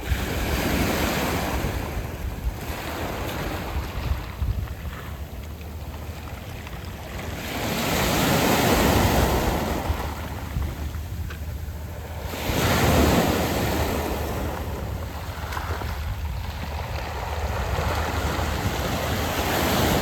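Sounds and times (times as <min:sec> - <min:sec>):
sea waves on pebble beach: 0:00.0 - 0:20.0
wind rumble on microphone: 0:00.0 - 0:20.0.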